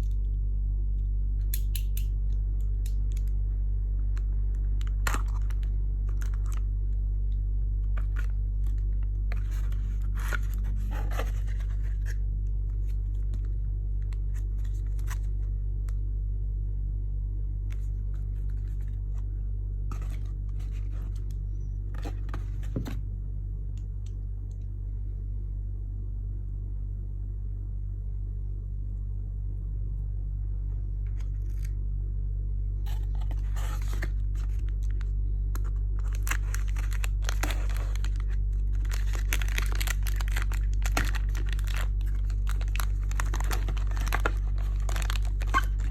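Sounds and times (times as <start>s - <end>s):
low electrical hum: 0.0s - 45.9s
plastic and cardboard rustling: 7.9s - 12.2s, 17.8s - 23.0s, 32.9s - 45.9s.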